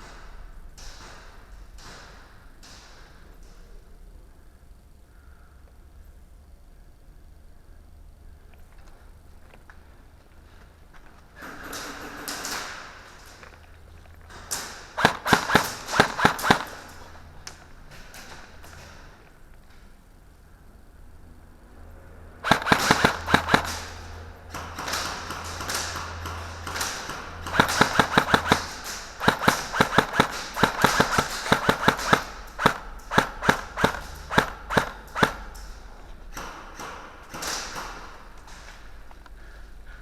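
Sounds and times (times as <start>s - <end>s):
airsoft guns firing: 14.5s - 17.2s, 22.4s - 38.3s.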